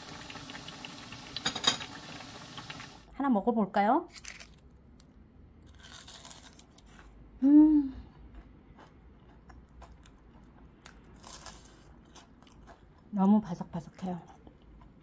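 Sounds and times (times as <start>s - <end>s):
chewing crispy fried food: 4.1s - 7.2s, 8.0s - 15.0s
person humming: 7.4s - 8.1s.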